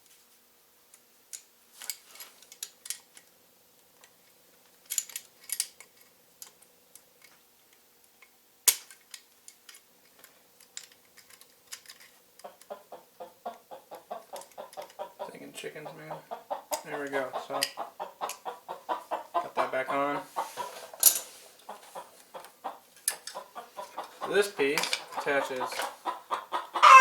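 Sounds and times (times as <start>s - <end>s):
small metal parts clicking: 1.3s - 3.3s, 4.8s - 7.4s, 8.2s - 12.6s
chickens clucking: 12.4s - 27.0s.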